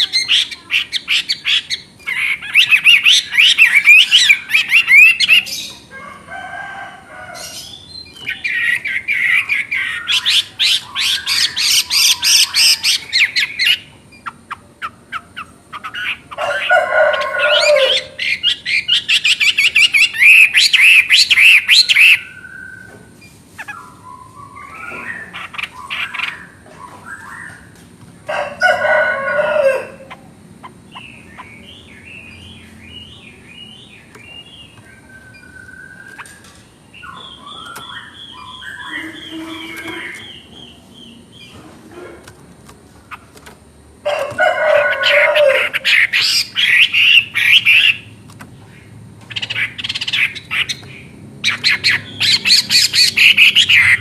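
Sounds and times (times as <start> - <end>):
bird singing fast high notes: 37.2 - 40.5.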